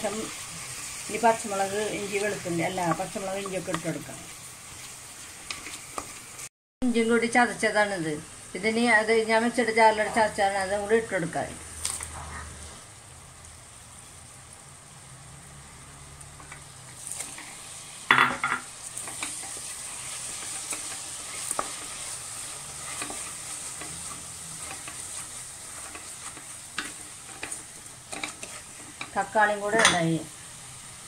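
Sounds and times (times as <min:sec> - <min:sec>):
vegetables sizzling in oil: 0:00.0 - 0:31.0
wooden spatula scraping pot: 0:19.0 - 0:30.0.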